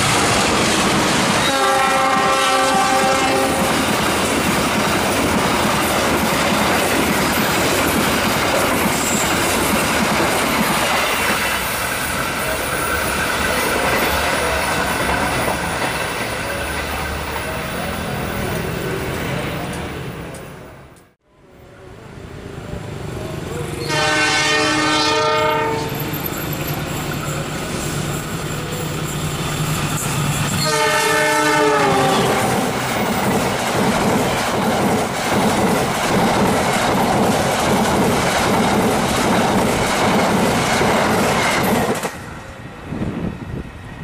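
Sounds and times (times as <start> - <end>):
train coaches rushing past: 0.0 - 44.0
train horn: 1.4 - 3.8, 23.8 - 26.2, 30.6 - 32.7
wheels clattering on rails: 2.7 - 17.8.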